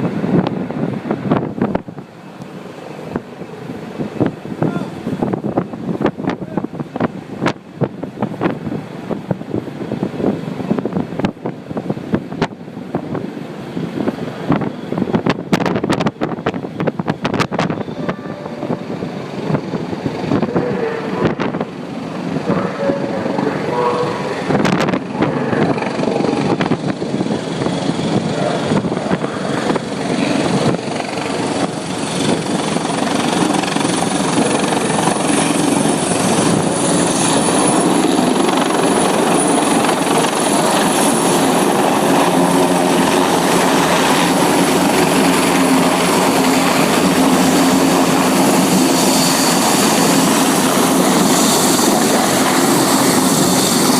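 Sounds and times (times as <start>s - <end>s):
helicopter rotor and engine: 0.0s - 53.9s
low hum: 17.6s - 30.4s.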